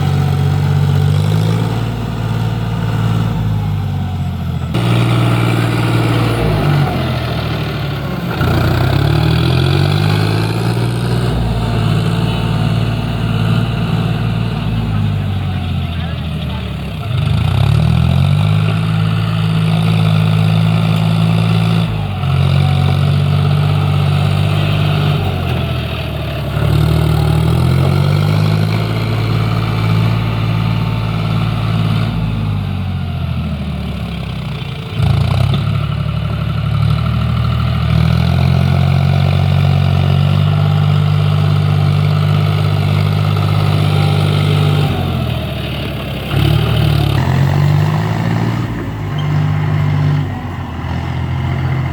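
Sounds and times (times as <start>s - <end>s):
tractor engine revving: 0.0s - 51.9s.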